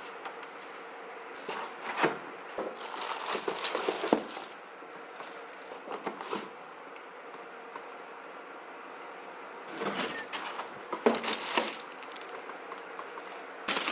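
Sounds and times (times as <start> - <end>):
plastic and cardboard crinkling: 1.4 - 6.5, 9.8 - 13.9.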